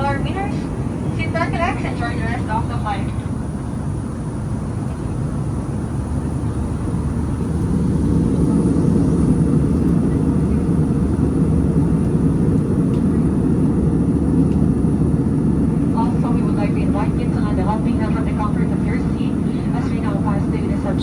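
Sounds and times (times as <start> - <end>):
airliner cabin rumble: 0.0 - 21.0.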